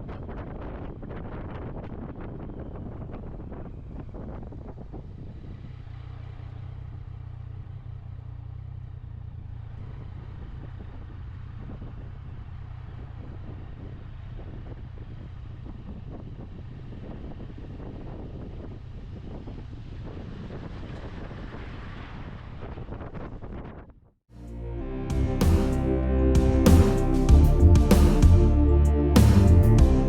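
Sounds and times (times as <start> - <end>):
wind buffeting microphone: 0.0 - 6.0, 10.2 - 24.0
motorcycle engine running: 3.8 - 19.5.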